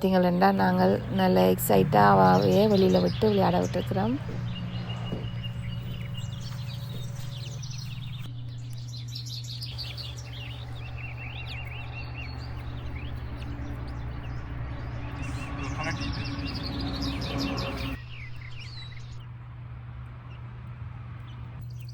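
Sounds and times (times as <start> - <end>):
birds chirping: 0.0 - 19.4
steady low hum: 0.0 - 21.7.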